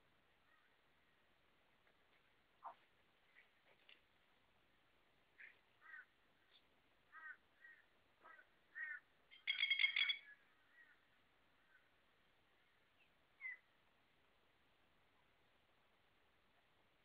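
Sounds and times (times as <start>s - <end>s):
birds calling: 5.4s - 11.9s, 12.6s - 13.7s.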